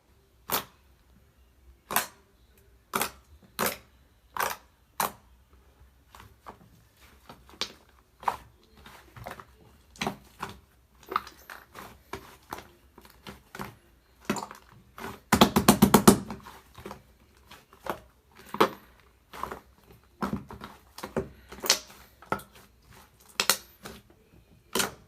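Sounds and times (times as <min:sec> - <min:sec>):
slime squelching: 0:06.0 - 0:25.0.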